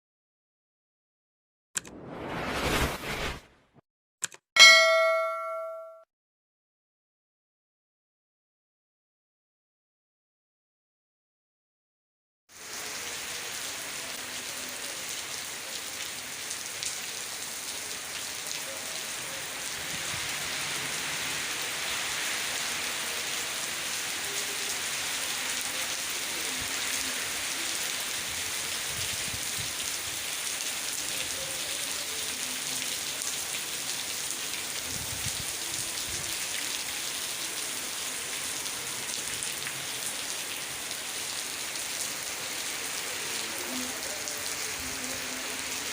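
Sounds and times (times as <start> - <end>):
heavy rain pouring: 12.6 - 45.9.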